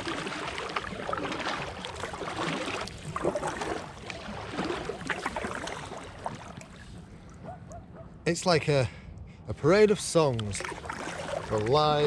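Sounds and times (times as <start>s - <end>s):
paddle splashing water: 0.0s - 7.6s, 10.0s - 12.0s
water lapping against kayak hull: 0.0s - 8.0s, 10.0s - 12.0s.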